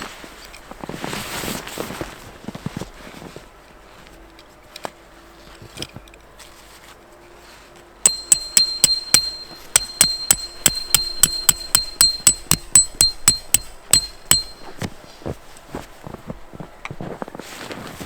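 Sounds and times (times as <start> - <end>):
metal struck ringing: 8.1 - 14.9.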